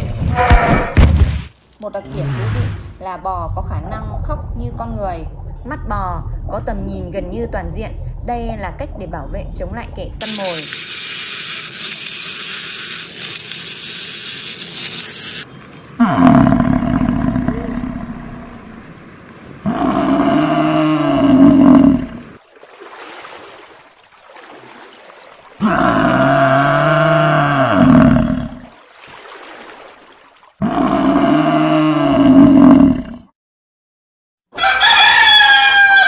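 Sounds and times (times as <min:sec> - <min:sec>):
cow mooing: 0:25.6 - 0:28.6.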